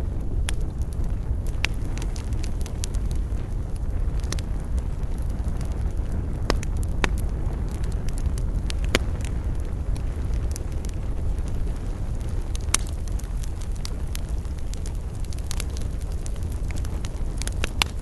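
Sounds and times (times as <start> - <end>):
campfire crackling and popping: 0.0 - 18.0
low rumble of flames: 0.0 - 18.0.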